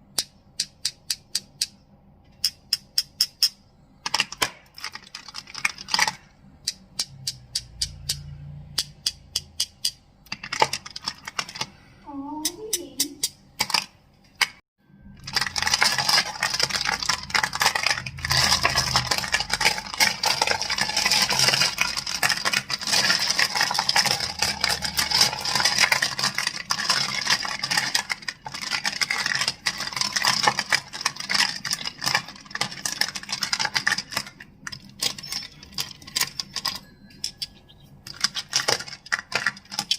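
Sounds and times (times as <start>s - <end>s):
fast clicking and scratching: 2.5s - 11.8s, 15.2s - 39.9s
crystals clacking: 15.0s - 39.9s.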